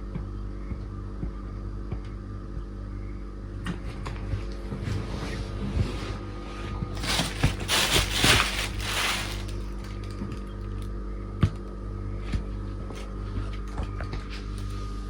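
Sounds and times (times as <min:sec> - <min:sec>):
steady low hum: 0:00.0 - 0:15.0
kittens scuffling: 0:07.0 - 0:10.2.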